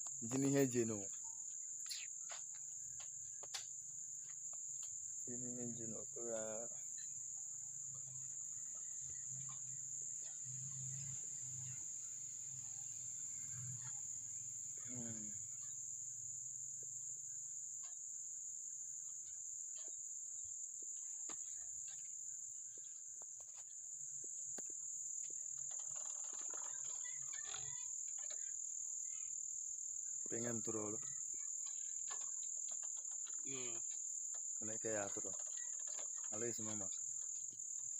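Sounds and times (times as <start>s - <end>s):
crickets chirring: 0.0s - 37.9s.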